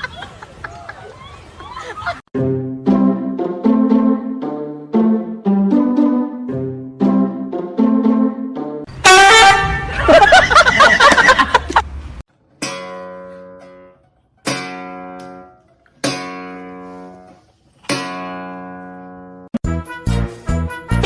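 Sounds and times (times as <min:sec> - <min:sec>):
acoustic guitar strumming chords: 0:12.6 - 0:17.3.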